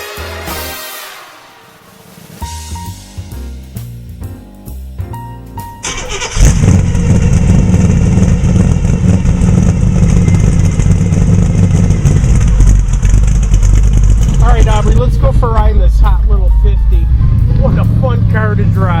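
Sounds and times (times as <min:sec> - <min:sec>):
engine deep rumble: 0:05.8 - 0:19.0.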